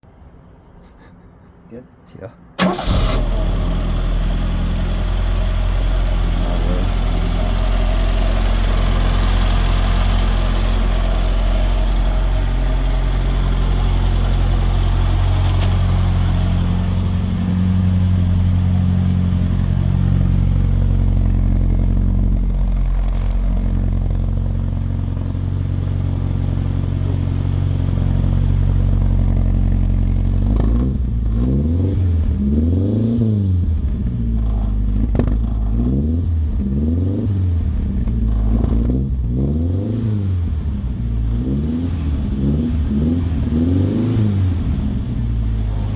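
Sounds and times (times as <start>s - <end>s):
car engine running and revving: 2.7s - 45.9s.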